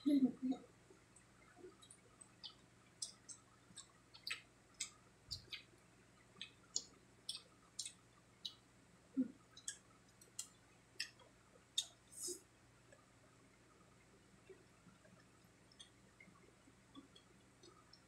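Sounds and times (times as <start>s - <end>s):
chewing mouth clicks and lip smacks: 1.7s - 5.7s.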